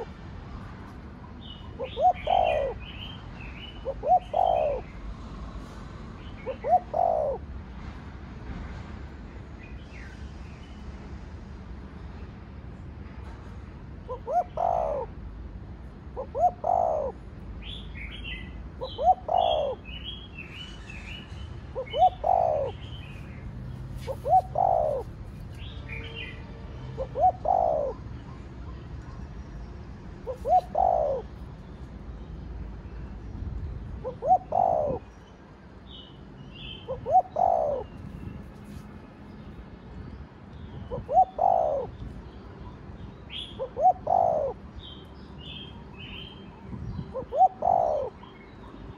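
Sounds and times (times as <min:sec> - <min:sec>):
small birds chirping: 0:01.4 - 0:05.0
dove cooing: 0:01.6 - 0:03.1, 0:03.8 - 0:04.9, 0:06.4 - 0:07.5, 0:14.1 - 0:15.2, 0:16.2 - 0:17.2, 0:18.8 - 0:19.9, 0:21.8 - 0:22.8, 0:24.0 - 0:25.2, 0:27.0 - 0:28.1, 0:30.2 - 0:31.3, 0:34.0 - 0:35.1, 0:36.9 - 0:37.9, 0:40.9 - 0:41.9, 0:43.5 - 0:44.6, 0:47.1 - 0:48.3.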